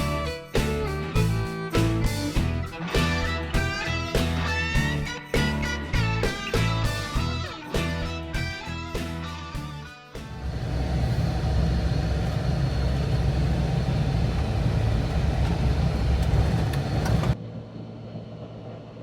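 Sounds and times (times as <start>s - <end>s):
car engine and tyres rumbling: 10.2s - 19.0s.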